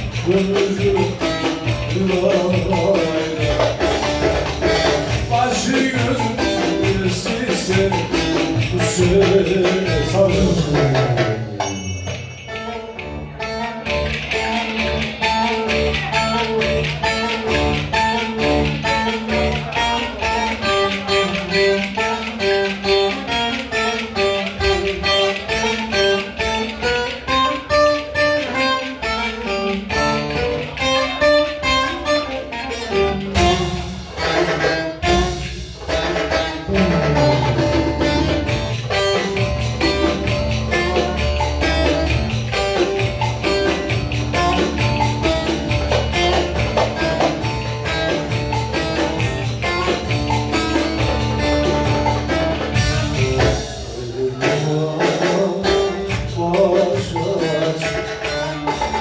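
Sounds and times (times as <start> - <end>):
fast percussion beat: 0.0 - 59.0
plucked string melody: 0.0 - 59.0.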